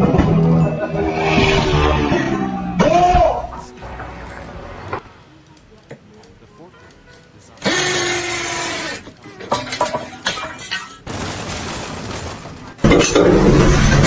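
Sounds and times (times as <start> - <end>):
deep loud noise: 0.0 - 5.3
steady noise: 0.0 - 5.8
loud breaking crash: 10.7 - 14.0.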